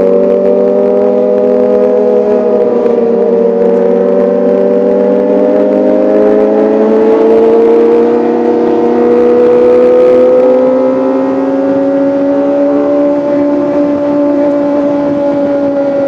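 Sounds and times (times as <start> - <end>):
motorcycle engine revving high: 0.0 - 16.0.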